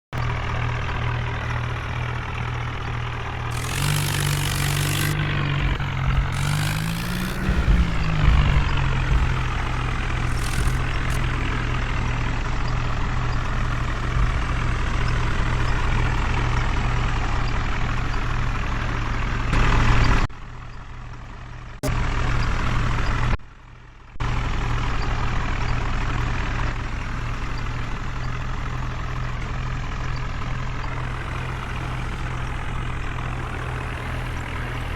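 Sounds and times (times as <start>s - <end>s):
heavy vehicle engine running: 0.1s - 34.9s
loud hissing bursts: 3.5s - 5.4s, 6.3s - 8.1s, 10.3s - 11.2s, 31.0s - 34.9s.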